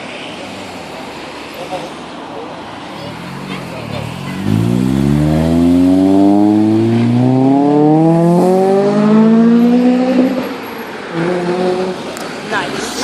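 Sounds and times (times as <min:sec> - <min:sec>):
car engine accelerating: 0:02.8 - 0:10.6.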